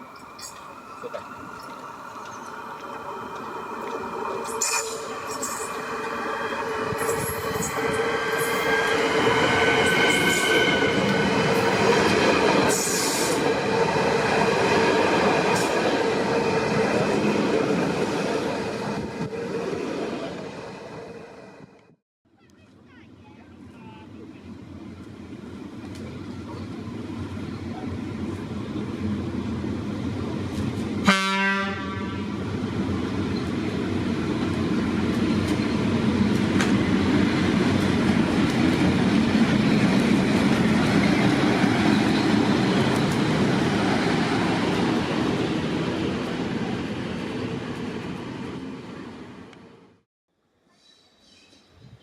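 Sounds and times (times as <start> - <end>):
electric locomotive running past: 0.0 - 21.9, 23.4 - 50.0
locomotive horn toot: 31.0 - 32.4.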